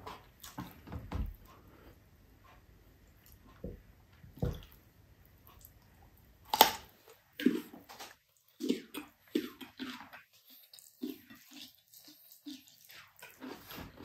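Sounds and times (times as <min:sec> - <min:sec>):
wet chewing: 0:00.1 - 0:00.8, 0:05.4 - 0:14.0.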